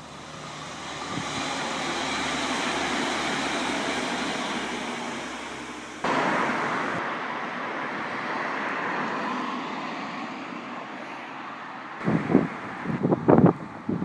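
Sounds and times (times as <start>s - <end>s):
train passing: 0.0s - 13.0s
wind buffeting microphone: 0.8s - 5.2s, 12.0s - 14.0s.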